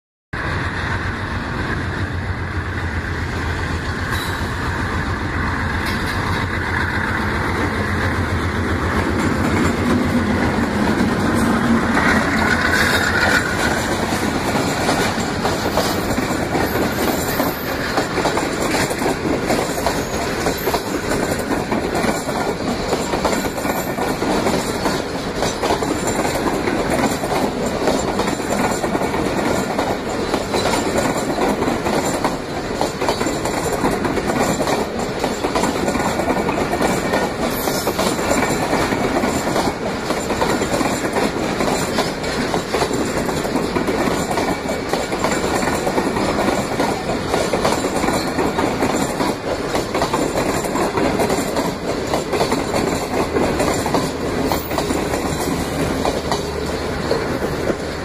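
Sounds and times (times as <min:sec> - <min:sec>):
train wheels clattering on rails: 0:00.8 - 0:58.0
locomotive engine: 0:50.9 - 0:58.0.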